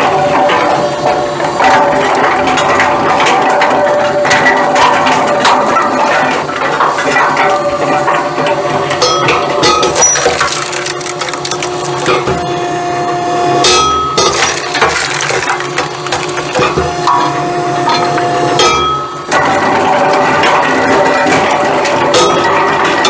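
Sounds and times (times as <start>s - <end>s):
machine hum: 0.0s - 23.0s
wood clattering against metal: 14.2s - 17.3s.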